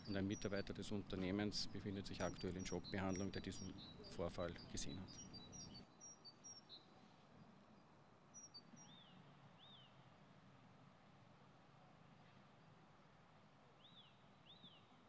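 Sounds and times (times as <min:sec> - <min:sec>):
faint high bird chirps: 0:13.8 - 0:15.0.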